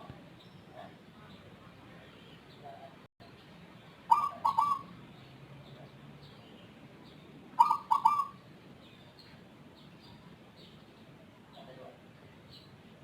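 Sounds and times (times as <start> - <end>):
dove cooing: 4.1 - 4.9, 7.6 - 8.4.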